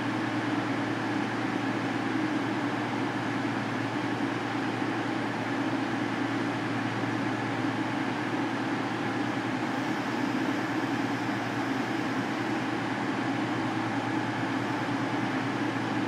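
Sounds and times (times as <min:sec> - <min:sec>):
train diesel engines humming: 0:03.6 - 0:16.0.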